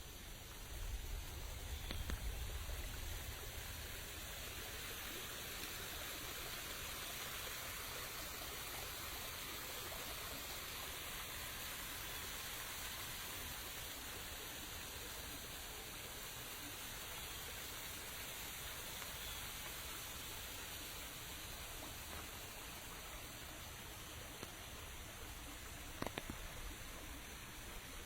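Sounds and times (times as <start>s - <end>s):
steady rain hiss: 0.0s - 28.0s
faint clicks: 1.6s - 2.8s, 24.1s - 26.9s.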